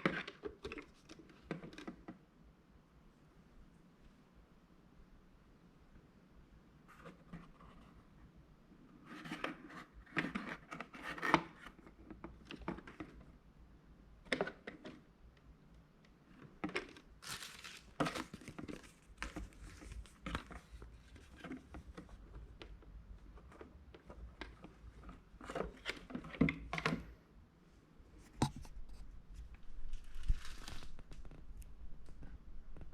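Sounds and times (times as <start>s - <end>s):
rustling and crinkling: 16.3s - 27.2s, 28.0s - 32.9s.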